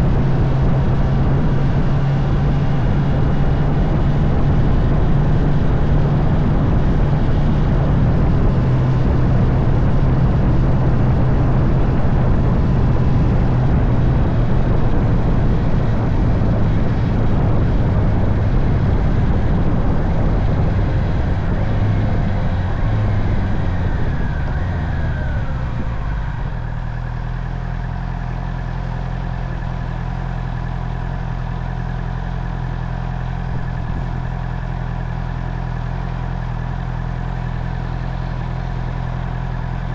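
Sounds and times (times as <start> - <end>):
wind rush: 0.0 - 27.8, 33.4 - 34.6
motorcycle engine running: 0.0 - 39.9.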